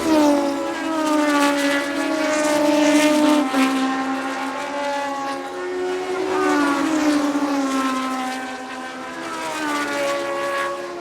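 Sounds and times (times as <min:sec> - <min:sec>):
race car engines passing: 0:00.0 - 0:11.0.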